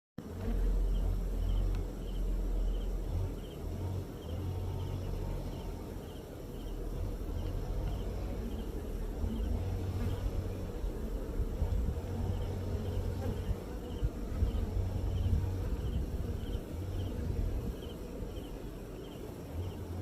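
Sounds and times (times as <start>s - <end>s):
honeybees buzzing: 0.2s - 20.0s
low rumble: 0.4s - 18.8s.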